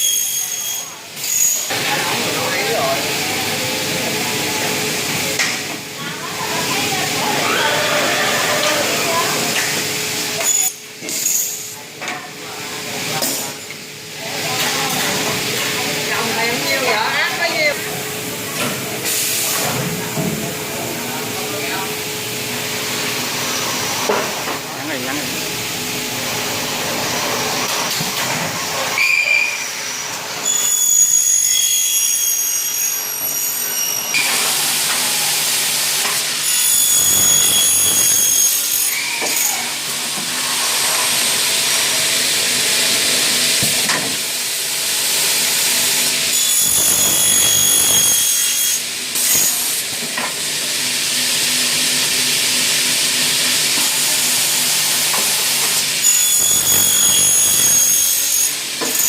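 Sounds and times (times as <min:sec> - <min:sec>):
high-pitched cutter whine: 0:29.0 - 0:40.2, 0:44.9 - 0:50.0, 0:50.7 - 0:59.0.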